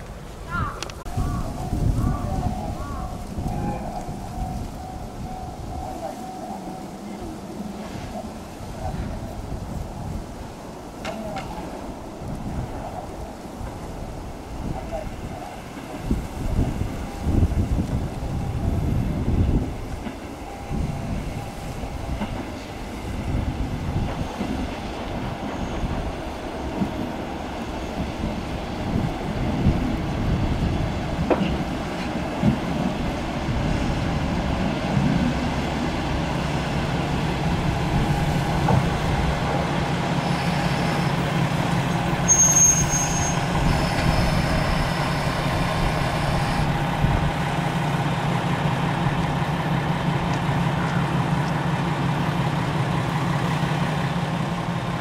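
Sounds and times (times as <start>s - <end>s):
diesel railcar engine rumbling: 0.0s - 55.0s
high-pitched squeal: 42.2s - 46.8s.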